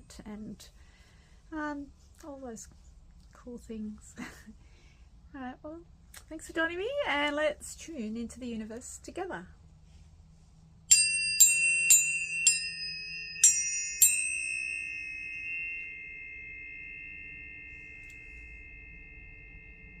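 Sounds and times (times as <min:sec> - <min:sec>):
tuning forks ringing high tone: 0:10.9 - 0:20.0
tuning forks struck: 0:10.9 - 0:20.0.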